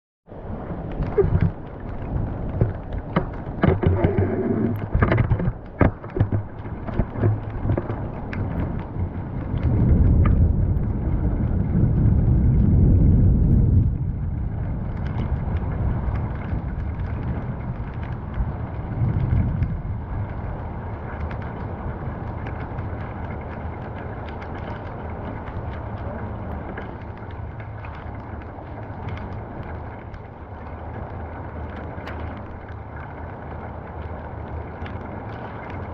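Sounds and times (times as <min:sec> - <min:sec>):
rain drops ticking: 0:00.3 - 0:35.9
steady rain hiss: 0:00.3 - 0:35.9
deep thunder rumble: 0:07.2 - 0:23.4.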